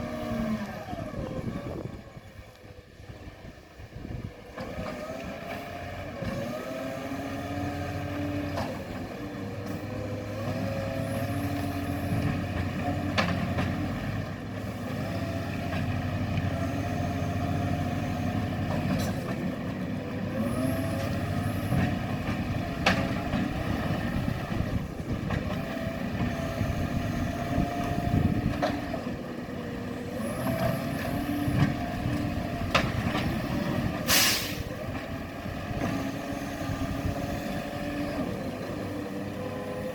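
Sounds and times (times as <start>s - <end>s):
diesel engine revving: 0.0s - 39.9s
loud hiss: 34.1s - 34.7s.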